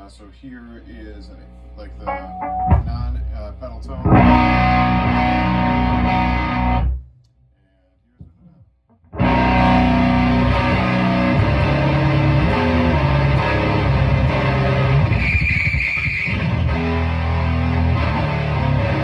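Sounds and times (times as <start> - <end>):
faint guitar string noise: 1.7 - 6.8
electric guitar chords: 1.7 - 7.0, 9.2 - 15.3, 16.3 - 19.0.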